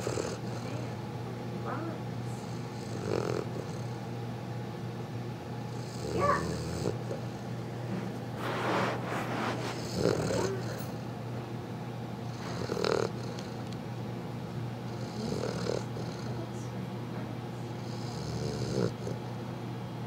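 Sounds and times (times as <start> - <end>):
puppy snoring: 0.0 - 1.0, 1.7 - 4.0, 5.7 - 7.5, 8.4 - 11.2, 12.3 - 13.8, 14.9 - 16.7, 17.7 - 19.3.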